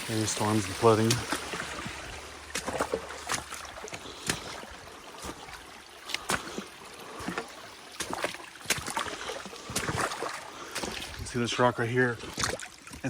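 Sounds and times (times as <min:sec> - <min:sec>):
boots splashing through creek: 0:00.0 - 0:13.0
running water hiss: 0:00.0 - 0:13.0.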